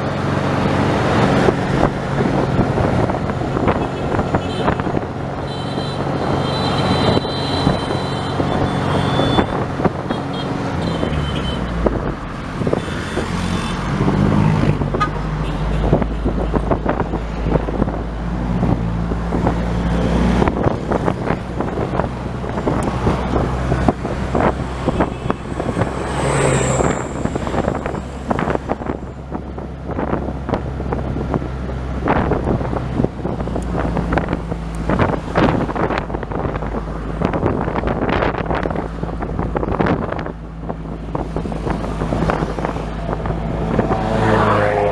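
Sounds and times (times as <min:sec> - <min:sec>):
road noise: 0:00.0 - 0:44.9
wind on microphone: 0:00.0 - 0:44.9.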